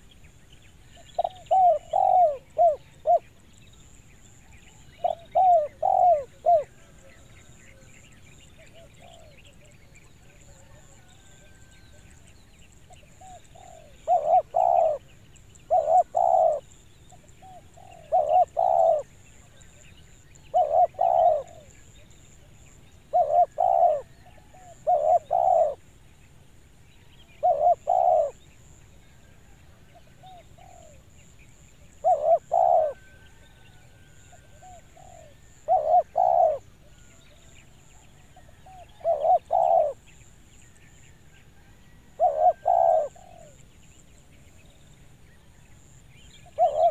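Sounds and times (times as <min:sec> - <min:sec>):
dove cooing: 0:00.9 - 0:03.4, 0:04.9 - 0:07.9, 0:08.6 - 0:09.6, 0:12.9 - 0:15.1, 0:15.7 - 0:16.6, 0:17.3 - 0:19.1, 0:20.4 - 0:22.5, 0:23.1 - 0:25.8, 0:27.4 - 0:28.4, 0:29.4 - 0:31.1, 0:32.0 - 0:37.0, 0:38.2 - 0:40.0, 0:41.6 - 0:43.6, 0:46.4 - 0:46.9.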